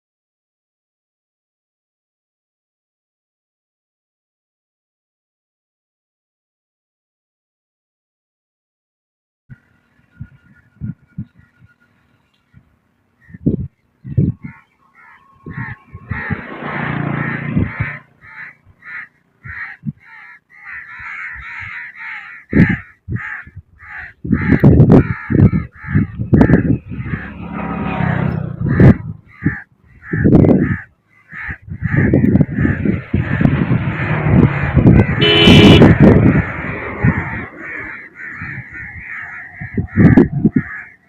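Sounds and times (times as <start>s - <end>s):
crows cawing: 14.4s - 41.0s
loud low rumbling bumps: 31.9s - 37.4s.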